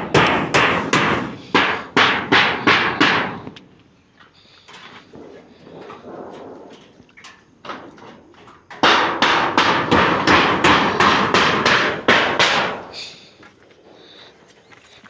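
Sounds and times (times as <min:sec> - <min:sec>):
hammer blows: 0:00.0 - 0:03.7, 0:08.8 - 0:13.2.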